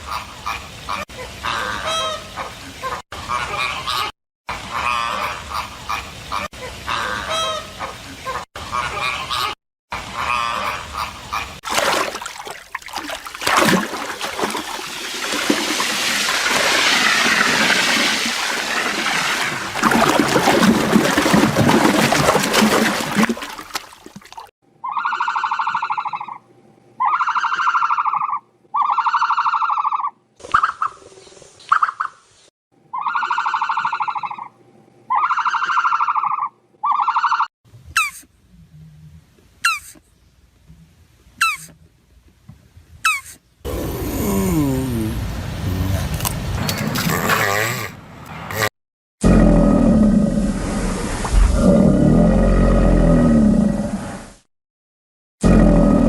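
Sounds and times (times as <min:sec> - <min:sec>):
animal calls: 0:24.8 - 0:26.4, 0:27.0 - 0:31.0, 0:35.1 - 0:38.3.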